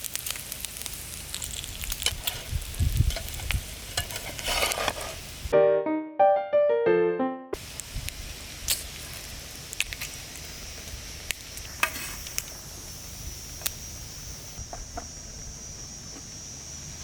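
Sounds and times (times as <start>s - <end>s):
food sizzling in a pan: 0.0s - 5.5s, 7.6s - 14.6s
sharp pops and crackles: 0.0s - 5.5s, 7.6s - 15.1s.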